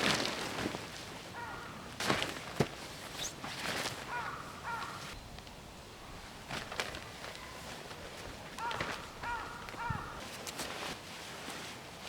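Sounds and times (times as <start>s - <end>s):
crow cawing: 1.4s - 1.9s, 4.1s - 5.1s, 8.6s - 10.2s.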